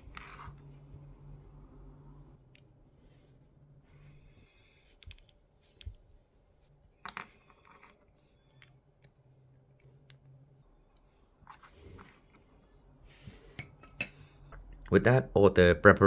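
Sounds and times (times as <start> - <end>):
small parts clicking and tapping: 4.9 - 6.2.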